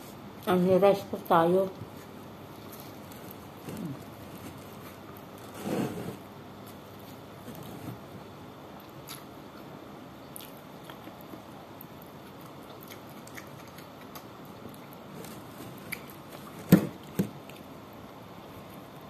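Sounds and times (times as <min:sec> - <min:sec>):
electric fan whirring: 0:00.0 - 0:08.8
person chewing: 0:08.8 - 0:16.5.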